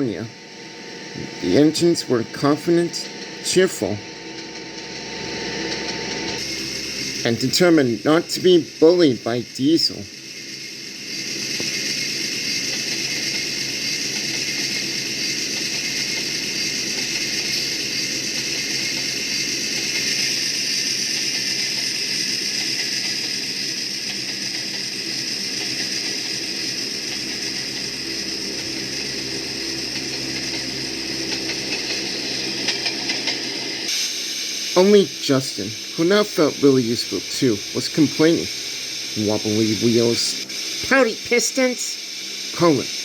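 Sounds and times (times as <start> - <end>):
engine running: 0.0 - 10.3, 11.3 - 43.0
steady hiss: 0.0 - 43.0.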